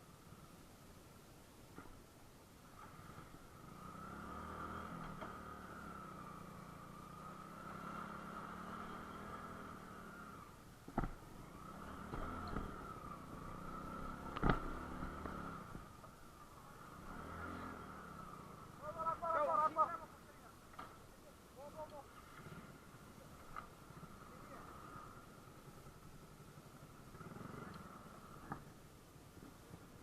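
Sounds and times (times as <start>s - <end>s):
motorcycle engine at low revs: 1.6s - 20.1s, 20.7s - 30.0s
sharp knocks: 10.9s - 11.2s.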